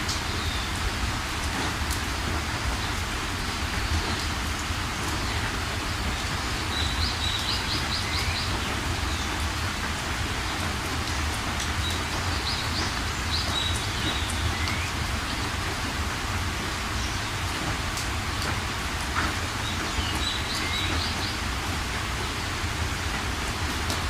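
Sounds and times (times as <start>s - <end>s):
rain falling: 0.0s - 24.0s
songbird singing: 6.0s - 9.4s, 19.6s - 21.4s.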